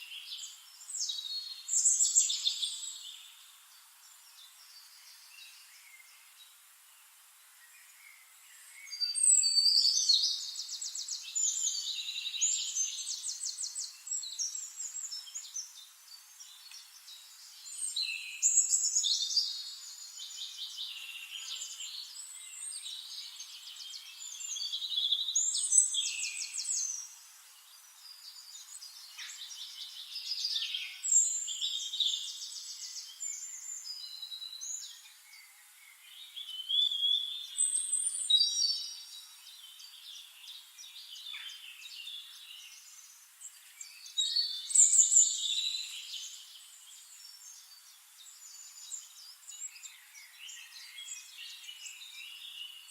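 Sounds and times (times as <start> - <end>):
songbirds trilling and whistling: 7.6 - 52.9.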